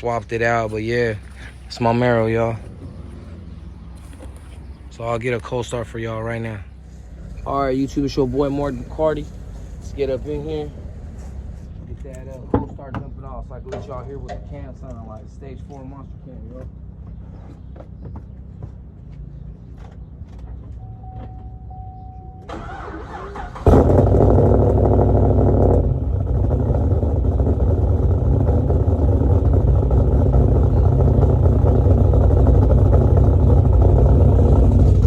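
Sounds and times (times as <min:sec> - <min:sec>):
car engine starting and idling lumpily: 0:00.0 - 0:35.0
short beep: 0:20.8 - 0:22.6.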